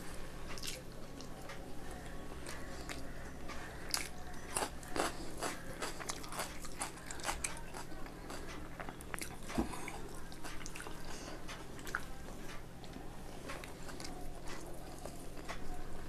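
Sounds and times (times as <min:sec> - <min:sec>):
person chewing and biting food: 0:03.9 - 0:12.1.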